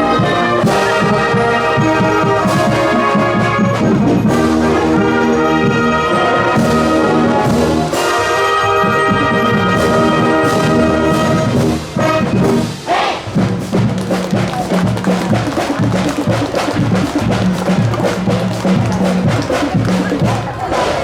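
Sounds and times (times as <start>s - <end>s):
brass chord: 0.0s - 12.8s
low brass figure: 0.0s - 13.5s
marching percussion rhythm: 0.0s - 21.0s.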